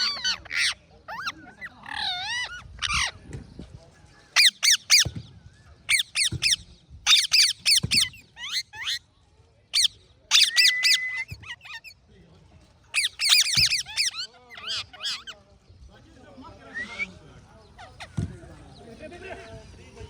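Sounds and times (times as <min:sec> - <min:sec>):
parrots calling: 0:00.0 - 0:03.2, 0:04.4 - 0:05.1, 0:05.9 - 0:09.0, 0:09.8 - 0:12.0, 0:12.9 - 0:15.4, 0:16.6 - 0:17.2.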